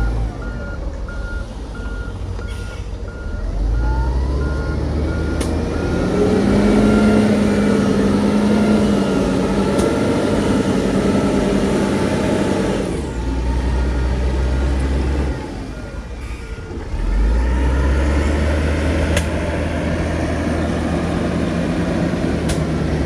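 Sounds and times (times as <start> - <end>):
reversing alarm beeping: 0.0 - 16.4
heavy diesel engine revving: 3.1 - 23.0.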